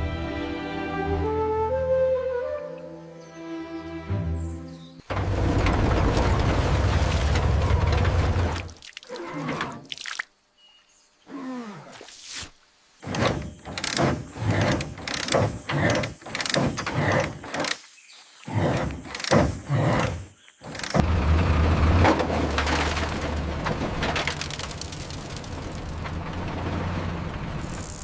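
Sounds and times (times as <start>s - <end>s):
metallic knocks and scrapes: 13.0s - 17.8s
engine low drone: 20.6s - 28.0s.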